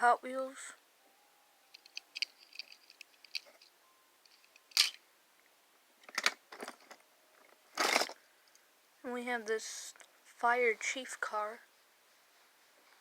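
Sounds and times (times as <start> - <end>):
toy cars clicking: 1.7 - 3.7, 4.3 - 5.0
toy cars scraping and rustling: 7.7 - 8.2.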